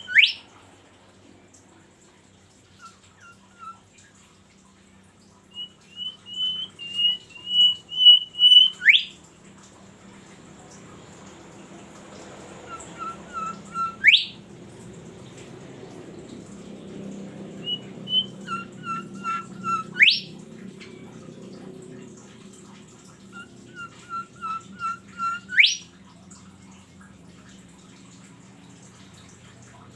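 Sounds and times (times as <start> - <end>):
songbird whistling song: 0.0 - 0.5, 2.7 - 3.9, 5.5 - 9.2, 12.6 - 14.4, 17.6 - 20.4, 23.1 - 26.0.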